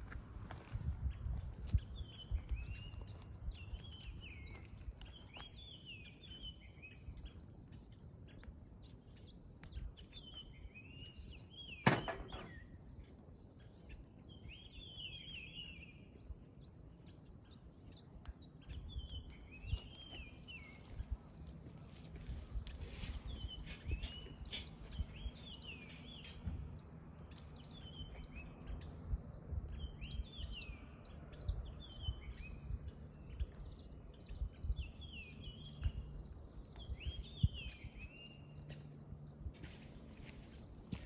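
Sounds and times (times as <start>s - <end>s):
campfire crackling and popping: 2.3s - 14.4s, 16.0s - 22.9s, 24.5s - 31.7s.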